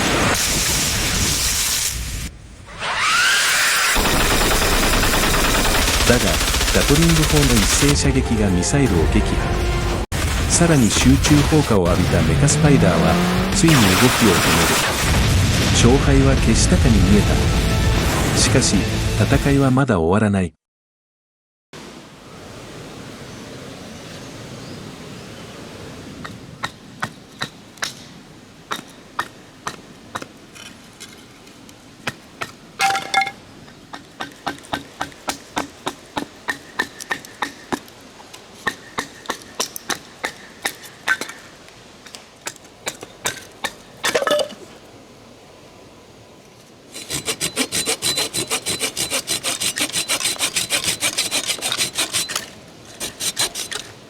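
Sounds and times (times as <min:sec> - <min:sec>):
hand saw cutting wood: 0:02.7 - 0:04.0, 0:05.9 - 0:08.0, 0:33.9 - 0:41.3, 0:46.9 - 0:54.0
scraping on wood: 0:46.9 - 0:54.0.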